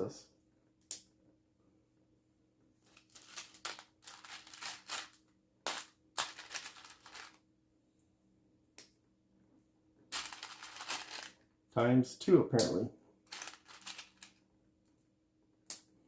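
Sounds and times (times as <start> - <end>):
plastic pieces clicking: 2.9 - 7.4, 10.2 - 11.4, 13.3 - 14.4.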